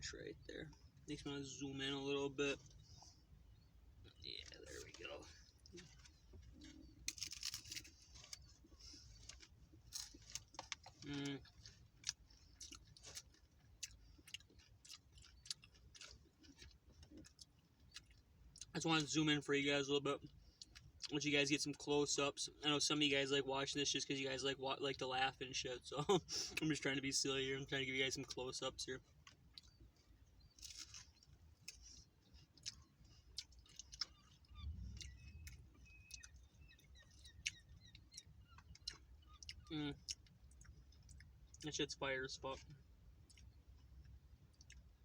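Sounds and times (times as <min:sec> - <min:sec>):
crisp taco shell being chewed: 0:02.6 - 0:19.1, 0:29.0 - 0:41.7, 0:42.5 - 0:45.0.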